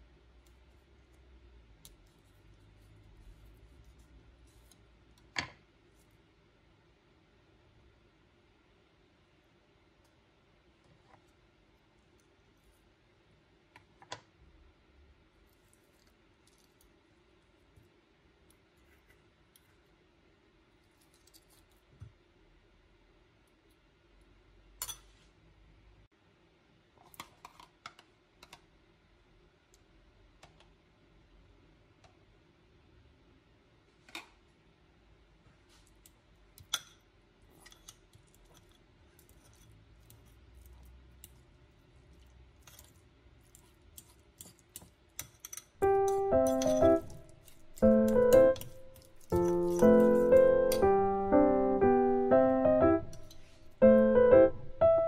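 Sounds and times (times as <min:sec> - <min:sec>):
fork tapping ceramic bowl: 0:45.2 - 0:50.9.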